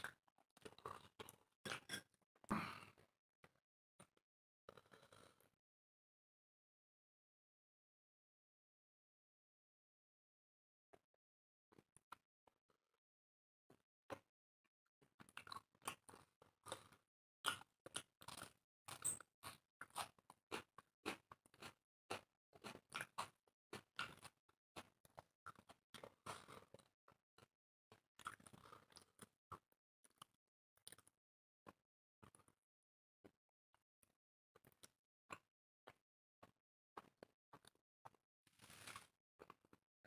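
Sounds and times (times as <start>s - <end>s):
people chewing with mouth smacks: 0.0s - 2.7s, 15.2s - 31.1s, 34.6s - 39.8s.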